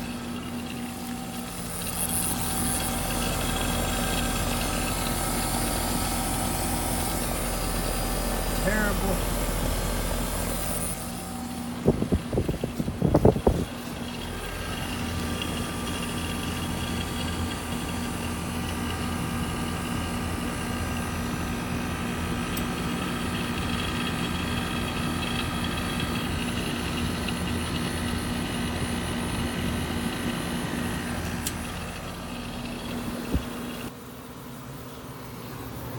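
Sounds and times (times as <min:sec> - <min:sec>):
heat pump humming: 0:00.0 - 0:35.9.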